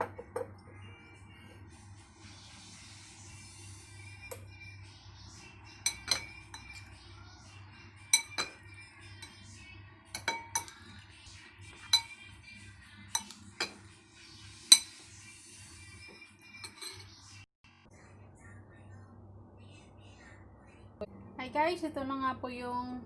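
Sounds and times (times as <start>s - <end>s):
quiet background music: 0.0s - 23.0s
dishes and utensils clinking: 5.8s - 7.0s, 8.1s - 9.5s, 10.1s - 12.4s, 13.1s - 14.0s, 14.6s - 15.2s, 16.0s - 17.4s.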